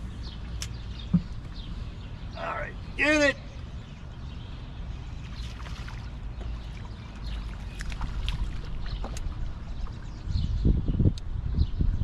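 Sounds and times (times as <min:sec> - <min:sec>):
water trickling and splashing: 0:05.0 - 0:10.8.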